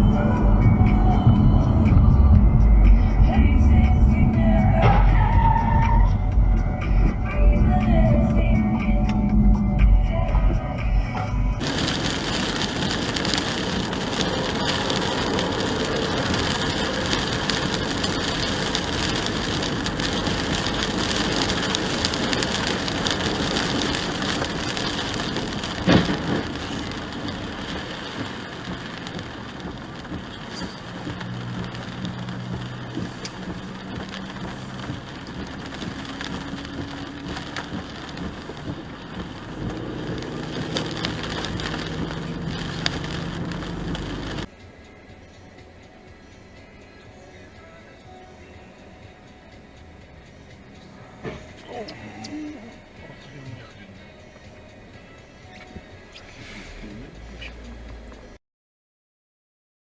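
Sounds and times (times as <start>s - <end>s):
low engine hum: 0.0s - 55.2s
car road and tyre noise: 0.0s - 58.4s
rain-like hiss: 11.6s - 58.4s.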